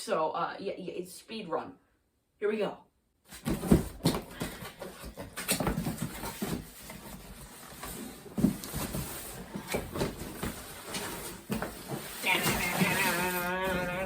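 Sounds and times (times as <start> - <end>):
packaging rustling: 3.6 - 13.9.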